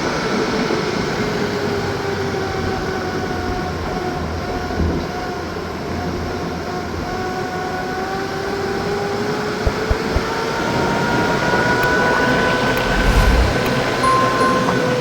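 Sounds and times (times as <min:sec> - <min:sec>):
low knocks: 0:09.7 - 0:10.3
vehicle engine running: 0:11.8 - 0:14.0.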